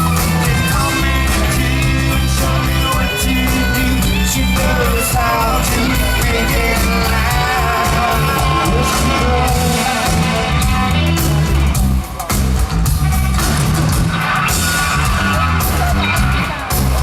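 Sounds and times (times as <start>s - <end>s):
man singing lead vocal: 0.0s - 12.2s
live rock band playing: 0.0s - 17.0s.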